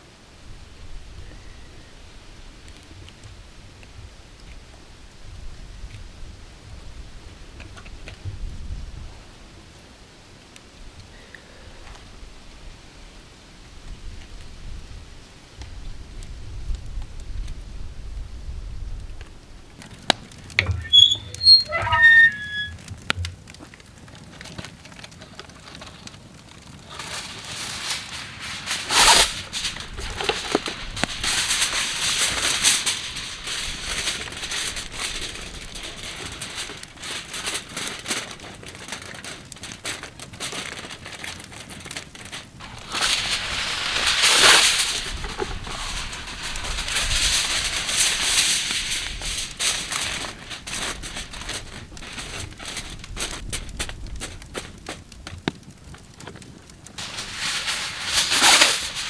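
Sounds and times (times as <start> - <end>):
campfire crackling: 19.7 - 59.0.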